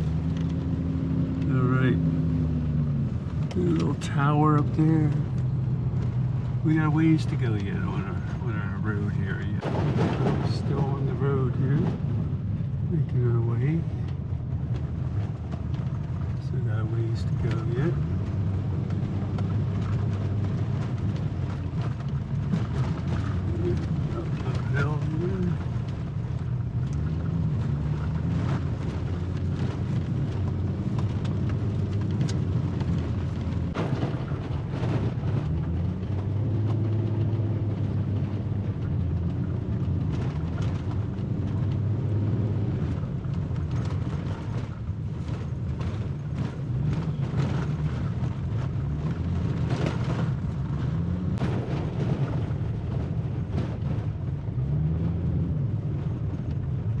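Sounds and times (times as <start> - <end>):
vehicle engine and tyre noise on gravel: 0.0 - 57.0
knocks and rattles from bumps: 14.1 - 57.0.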